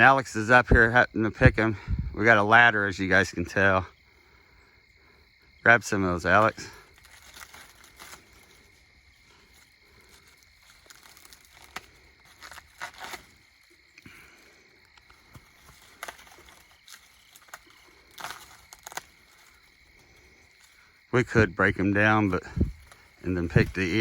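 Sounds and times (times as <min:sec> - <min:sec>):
dry corn leaves rustling: 0:05.7 - 0:24.0.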